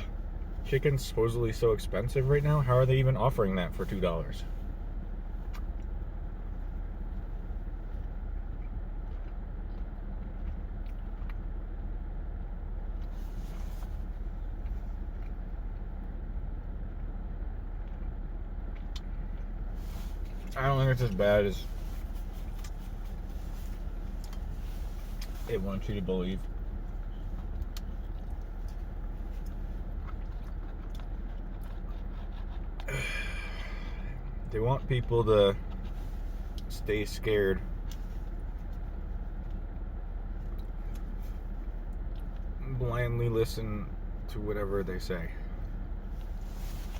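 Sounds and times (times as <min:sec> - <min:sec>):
person chewing food: 0:08.1 - 0:11.7, 0:22.0 - 0:25.4, 0:27.0 - 0:34.0.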